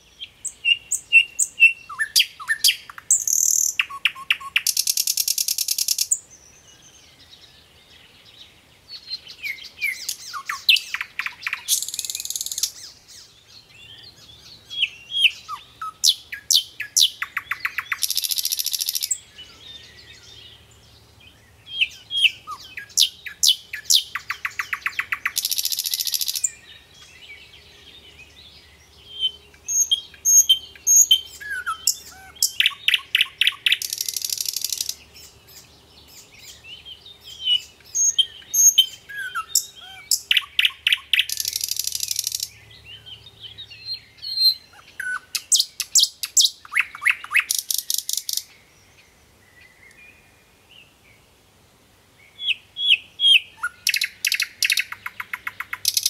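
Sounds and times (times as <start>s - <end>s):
songbird chirping and trilling: 0.0s - 51.4s, 52.1s - 56.0s.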